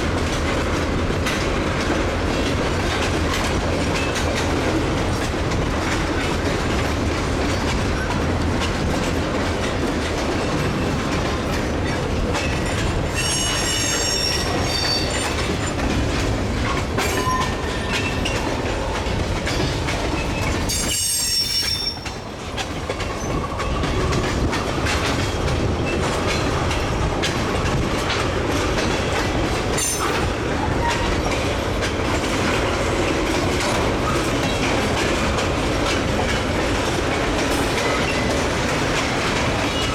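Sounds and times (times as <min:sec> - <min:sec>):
freight train rumbling by: 0:00.0 - 0:39.9
steel wheels squealing: 0:12.4 - 0:15.4, 0:17.0 - 0:18.5, 0:19.5 - 0:22.3.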